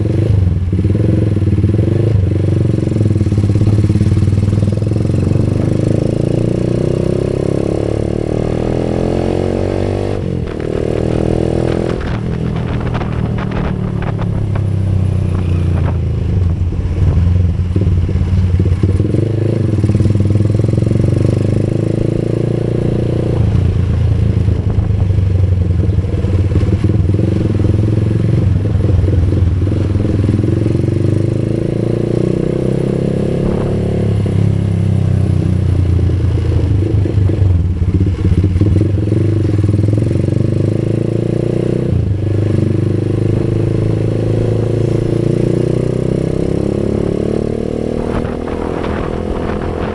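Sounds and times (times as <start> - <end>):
road and wind noise: 0.0 - 49.9
vehicle engine running: 10.1 - 21.8, 22.8 - 31.5, 33.3 - 40.2, 46.3 - 49.9.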